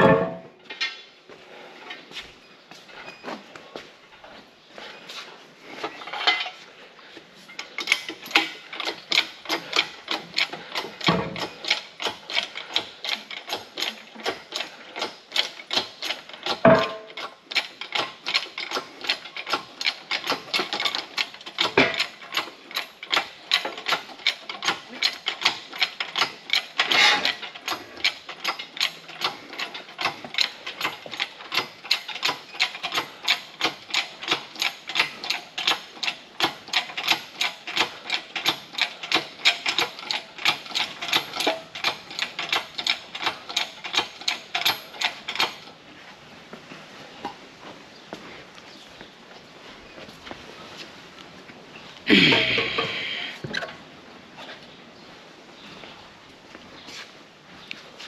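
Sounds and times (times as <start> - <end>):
metal knocks: 0.0 - 0.9, 16.5 - 17.2.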